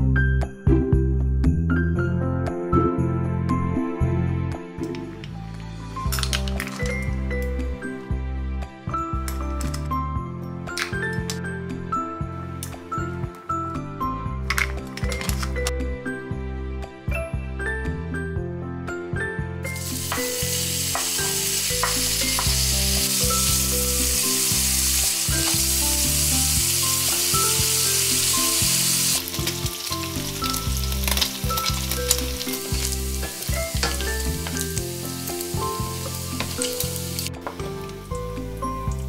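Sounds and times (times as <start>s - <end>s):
meat sizzling in hot oil: 19.7s - 39.0s.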